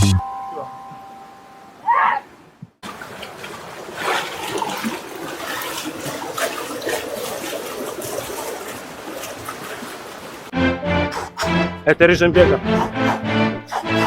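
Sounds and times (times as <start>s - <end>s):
small water splashes: 2.8s - 10.5s.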